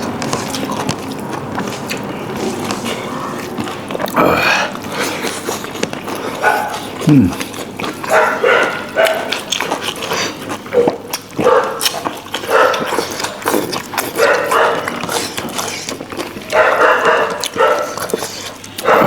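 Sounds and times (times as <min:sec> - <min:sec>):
dog barking: 0:06.3 - 0:06.9, 0:08.0 - 0:09.5, 0:10.7 - 0:13.3, 0:14.0 - 0:15.2, 0:16.4 - 0:19.0.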